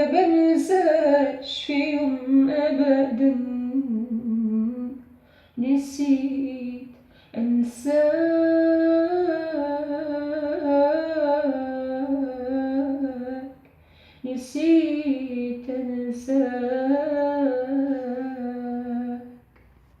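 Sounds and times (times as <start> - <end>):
woman breathing: 5.1 - 5.6, 7.0 - 7.4, 13.6 - 14.3.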